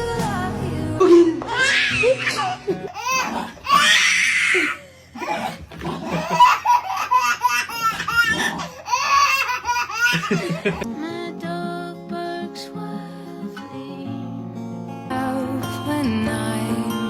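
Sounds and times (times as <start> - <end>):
guitar music: 0.0 - 3.6, 10.6 - 17.0
hearty laughter: 4.6 - 8.4, 9.4 - 10.9.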